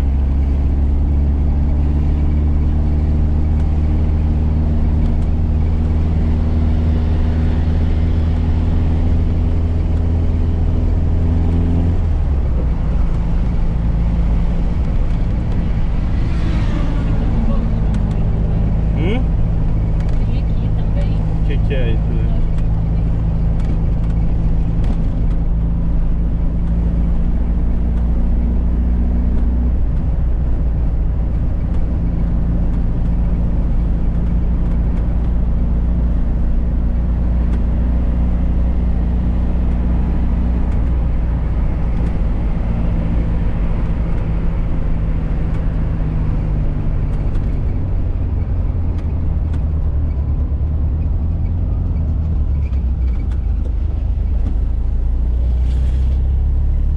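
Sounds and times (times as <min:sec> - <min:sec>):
car engine running: 0:00.0 - 0:56.9
road noise: 0:00.0 - 0:56.9.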